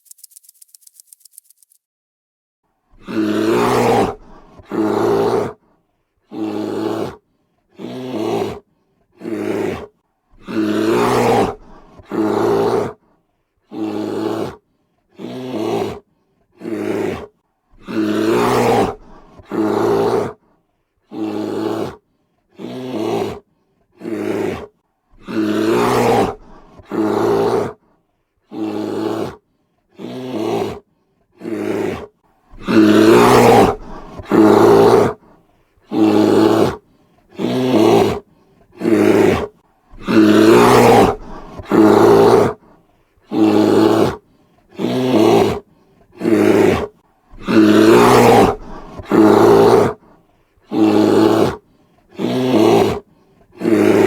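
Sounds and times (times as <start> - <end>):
lion roaring: 3.0 - 5.6, 9.2 - 13.0, 16.6 - 20.4, 24.0 - 27.8, 31.4 - 35.2, 35.9 - 36.8, 37.4 - 38.2, 38.8 - 42.6, 43.3 - 44.2, 46.2 - 50.0, 50.7 - 51.6, 52.2 - 53.0, 53.6 - 54.0.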